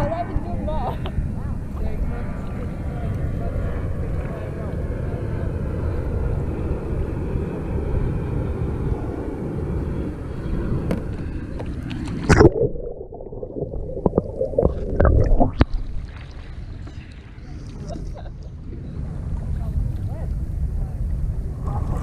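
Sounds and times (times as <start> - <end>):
wind and water rumble on microphone: 0.0 - 22.0
muffled underwater gurgling: 11.2 - 20.2, 21.2 - 22.0
loud splash: 12.2 - 16.6.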